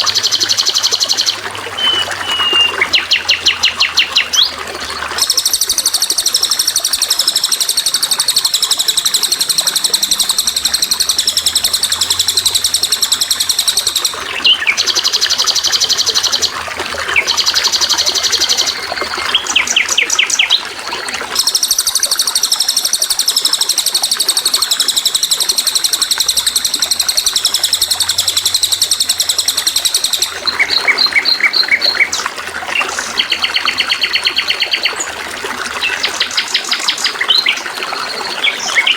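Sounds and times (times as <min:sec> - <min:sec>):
running water trickling: 0:00.0 - 0:38.9
songbird singing buzzy trills: 0:00.0 - 0:38.9.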